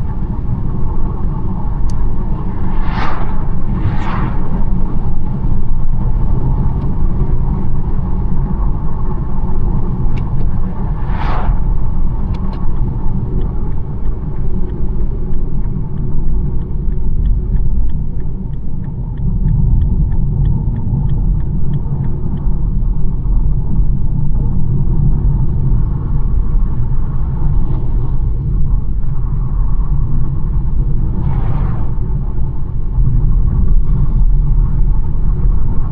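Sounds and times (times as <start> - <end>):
car road and engine rumble: 0.0 - 35.9
short whoosh: 2.1 - 6.6, 10.4 - 13.0, 31.0 - 32.6
light ticks: 5.2 - 23.4.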